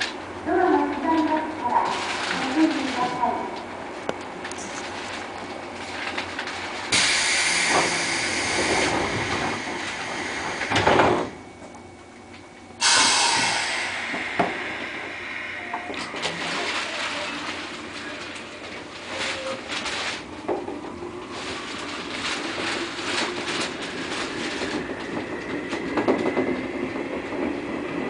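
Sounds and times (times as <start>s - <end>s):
electric train running: 6.0s - 28.0s
loud hiss: 6.9s - 10.8s, 12.8s - 15.7s.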